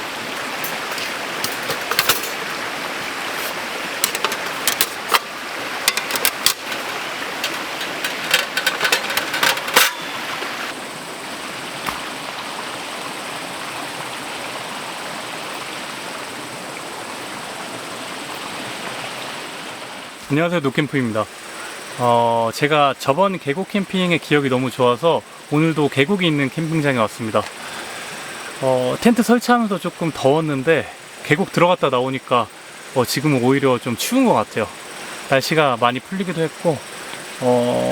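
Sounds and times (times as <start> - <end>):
stream flowing over rocks: 0.0 - 20.4, 23.3 - 37.9
sharp clicks and knocks: 0.6 - 2.4, 3.4 - 10.2.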